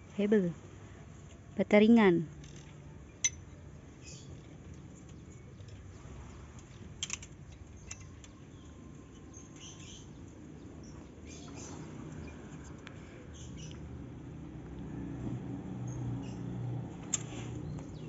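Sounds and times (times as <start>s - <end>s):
small birds chirping: 2.8s - 14.4s, 15.8s - 18.0s.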